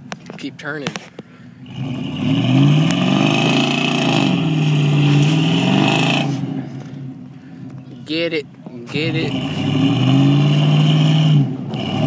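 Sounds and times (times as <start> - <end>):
truck engine revving hard: 1.6 - 7.1, 9.0 - 12.0.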